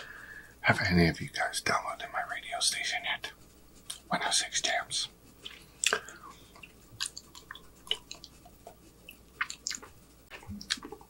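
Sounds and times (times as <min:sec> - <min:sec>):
wet chewing smacks: 0:05.4 - 0:11.0.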